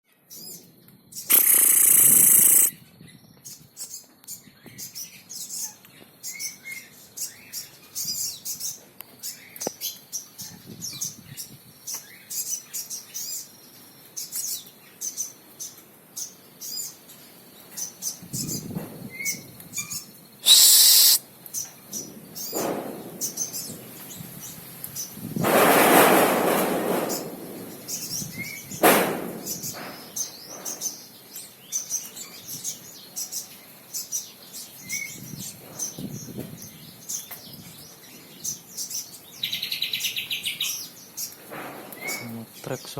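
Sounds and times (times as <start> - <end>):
bird singing high chirps: 1.2 - 2.8, 17.8 - 21.2
loud hiss: 1.3 - 2.7, 20.4 - 21.2
rushing noise: 20.4 - 21.2.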